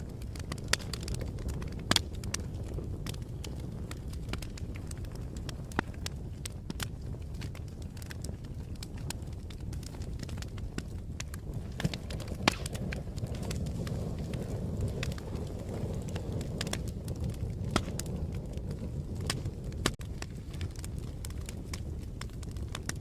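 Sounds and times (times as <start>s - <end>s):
fire crackling: 0.0s - 23.0s.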